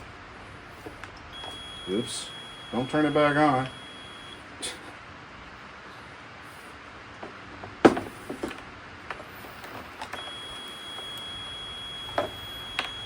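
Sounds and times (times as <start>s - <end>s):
high electronic beep tone: 1.4s - 4.4s, 10.2s - 13.0s.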